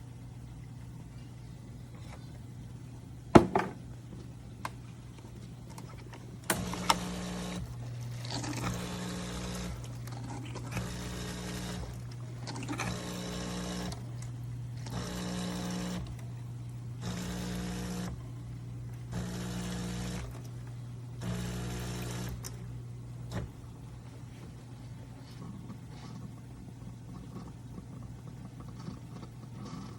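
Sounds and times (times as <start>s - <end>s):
pump click: 4.6s - 16.3s
pump buzzing: 6.4s - 23.7s
espresso machine humming: 6.5s - 22.7s.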